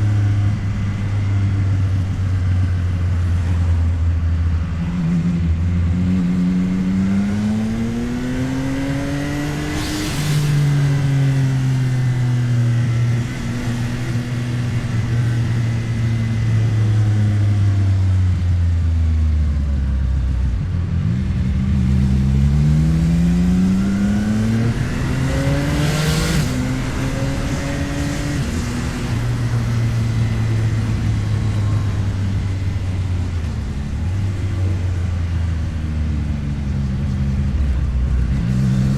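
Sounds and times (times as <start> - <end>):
motorcycle engine revving: 0.0 - 18.3, 20.5 - 38.9
short rush of noise: 9.4 - 11.8, 25.8 - 29.4.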